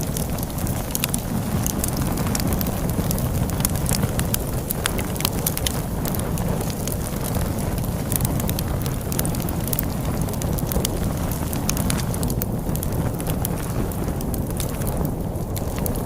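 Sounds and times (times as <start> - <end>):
log fire crackling and popping: 0.0 - 16.0
low rumble of storm wind: 0.0 - 16.0.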